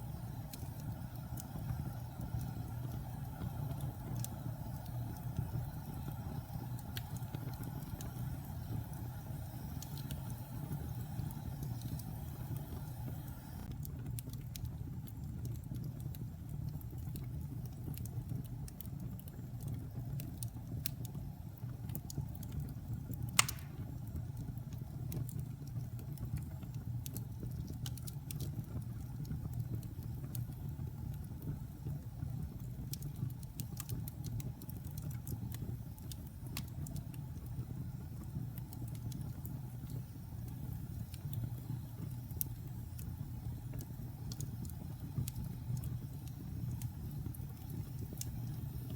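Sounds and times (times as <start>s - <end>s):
fire crackling: 0.0s - 48.9s
loud pop from fire: 23.4s - 24.0s.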